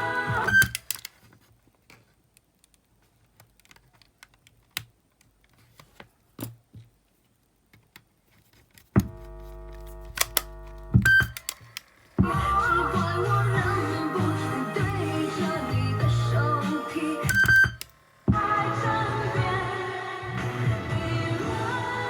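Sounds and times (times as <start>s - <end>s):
steady hum: 9.0s - 22.0s.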